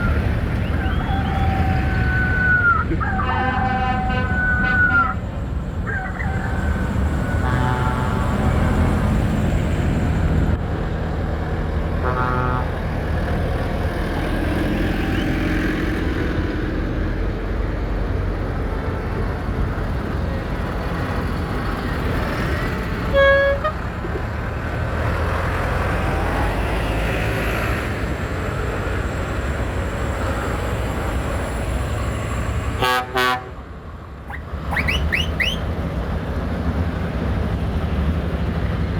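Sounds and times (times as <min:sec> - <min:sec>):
horns tooting: 0:00.0 - 0:09.0, 0:12.0 - 0:12.9, 0:23.0 - 0:24.2, 0:32.8 - 0:33.6, 0:34.3 - 0:35.7
tractor diesel engines: 0:00.0 - 0:38.9.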